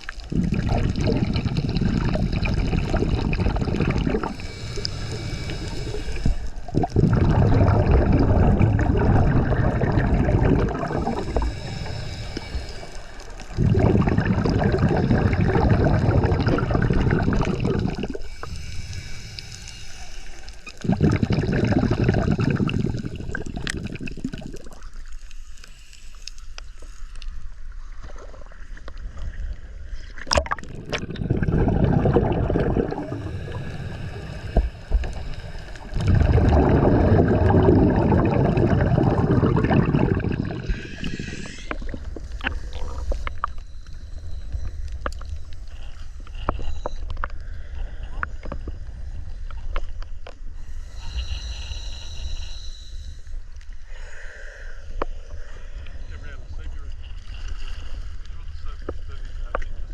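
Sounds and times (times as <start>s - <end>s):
water gurgling and bubbling: 0.0s - 19.1s, 20.6s - 25.1s, 30.0s - 46.7s.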